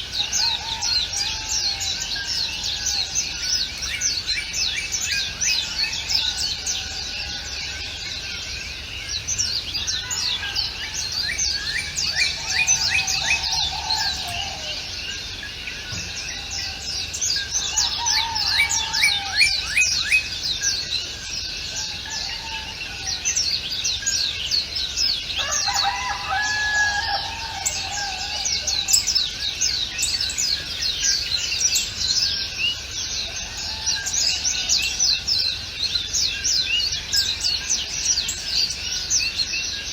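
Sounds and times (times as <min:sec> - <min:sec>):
lower bird call: 0:00.0 - 0:24.4
small birds chirping: 0:00.0 - 0:39.9.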